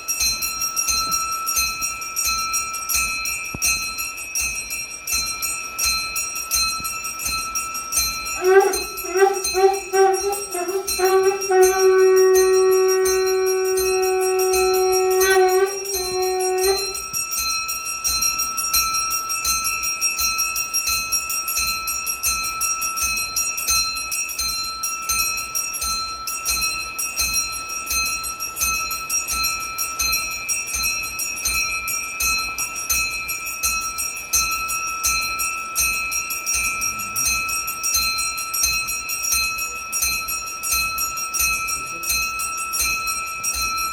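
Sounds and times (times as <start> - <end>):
brass bell rung rapidly: 0.1 - 43.9
long steady note with overtones: 8.3 - 17.2.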